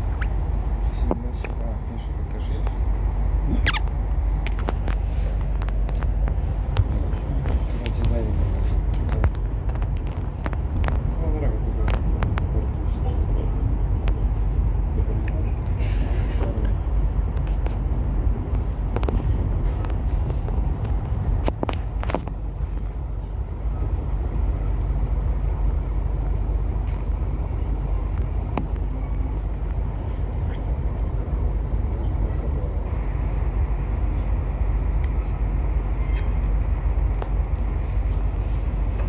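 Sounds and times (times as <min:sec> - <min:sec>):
train rumble inside carriage: 0:00.0 - 0:39.0.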